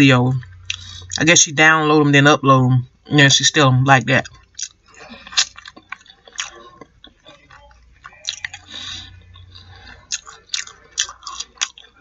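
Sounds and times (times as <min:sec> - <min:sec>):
person chewing food: 0:00.3 - 0:01.2, 0:04.2 - 0:12.0.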